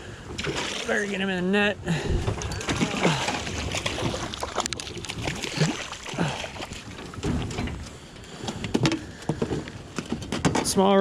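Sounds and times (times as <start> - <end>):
water splashing: 0.3 - 7.6
knocks and clatter: 7.0 - 7.8.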